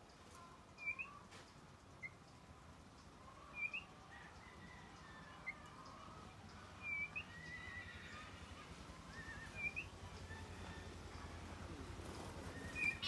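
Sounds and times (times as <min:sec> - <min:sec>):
songbird chirps: 0:00.0 - 0:13.0
thin drawn-out bird whistles: 0:00.8 - 0:01.2, 0:03.5 - 0:03.9, 0:06.8 - 0:08.0, 0:09.0 - 0:10.5, 0:12.4 - 0:13.0.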